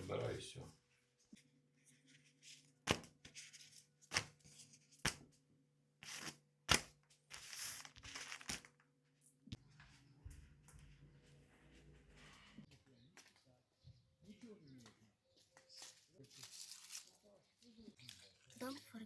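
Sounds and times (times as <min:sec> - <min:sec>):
produce rustling: 0:06.0 - 0:08.7, 0:15.6 - 0:19.0.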